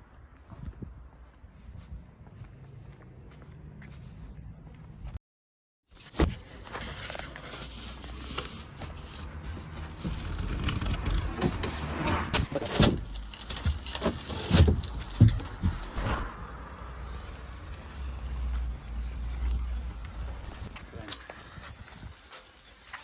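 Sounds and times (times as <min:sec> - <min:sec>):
rustling: 0:05.9 - 0:19.7
scraping: 0:06.2 - 0:17.3.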